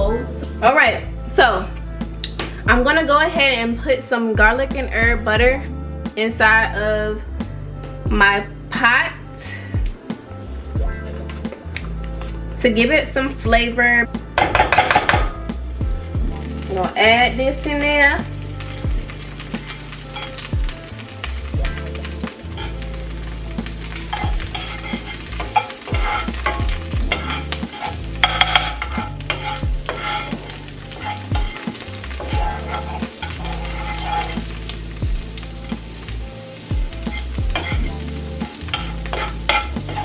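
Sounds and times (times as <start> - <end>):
butter sizzling in a pot: 10.8 - 40.0
utensil scraping a pot: 18.6 - 21.4, 22.2 - 34.8, 36.9 - 40.0.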